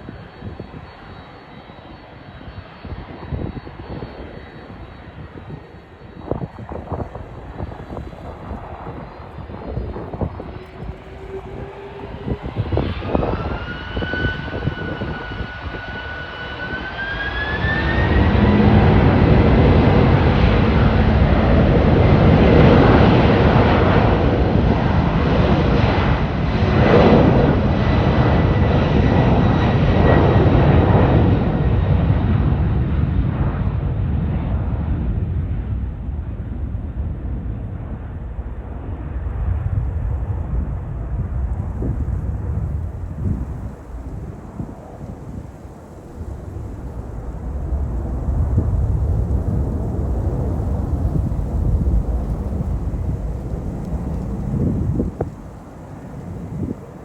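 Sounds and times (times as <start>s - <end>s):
wind buffeting microphone: 0.0s - 57.0s
jet engines spooling up: 0.1s - 32.0s.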